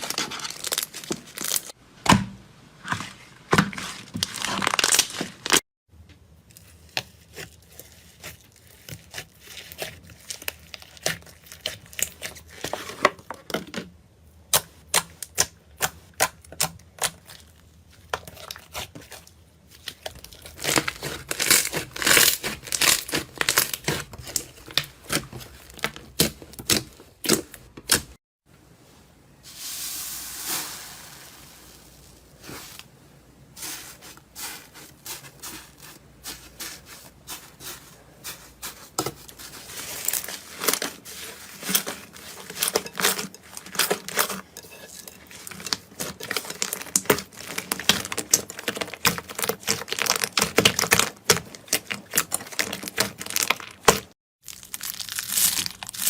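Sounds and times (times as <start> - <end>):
soft smooth hiss: 28.6 - 33.1.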